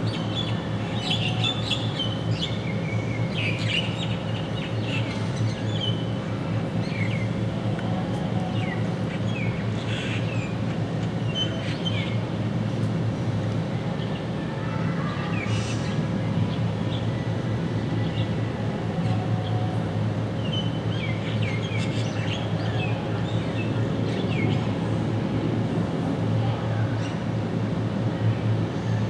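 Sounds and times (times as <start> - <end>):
steady low rumble: 15.4 - 29.0.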